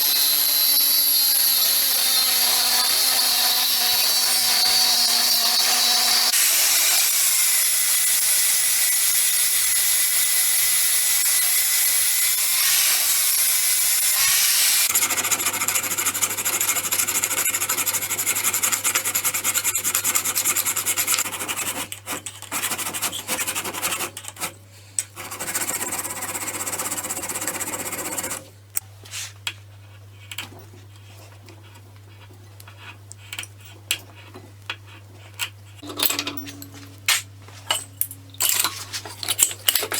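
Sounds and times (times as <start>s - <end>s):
low steady hum: 35.8s - 39.4s.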